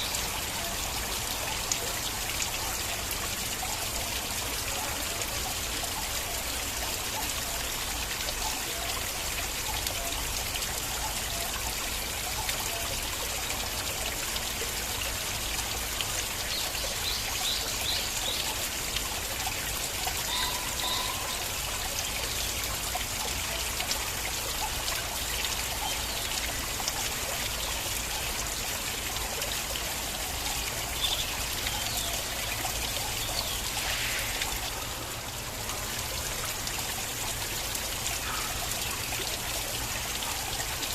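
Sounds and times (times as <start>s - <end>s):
stream trickling over stones: 0.0s - 40.9s.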